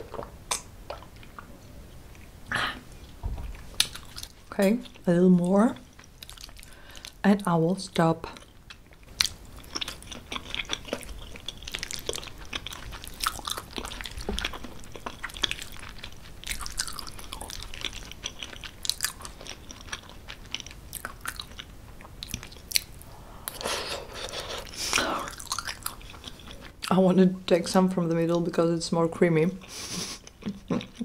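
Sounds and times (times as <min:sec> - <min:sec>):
wet chewing with mouth clicks: 0:03.0 - 0:05.0, 0:05.7 - 0:07.2, 0:08.3 - 0:26.9, 0:29.6 - 0:31.0.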